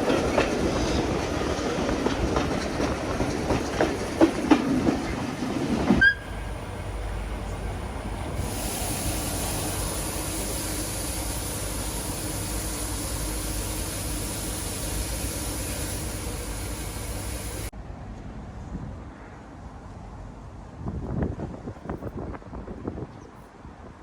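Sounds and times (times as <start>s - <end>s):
steam train rumble and hiss: 0.0s - 17.7s.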